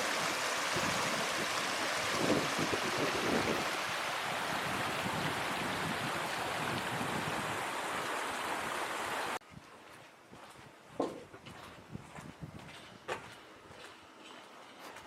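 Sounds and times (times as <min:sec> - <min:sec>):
rushing water: 0:00.0 - 0:09.4.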